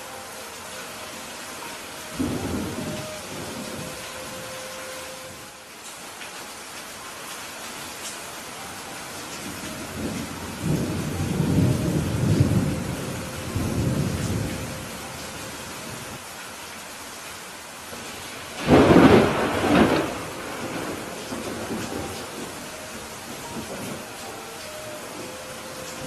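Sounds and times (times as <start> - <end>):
heavy rain: 0.0 - 26.0
thunder rumbling: 2.0 - 5.4, 9.4 - 15.4, 18.6 - 26.0
sharp thunderclap: 18.6 - 22.0.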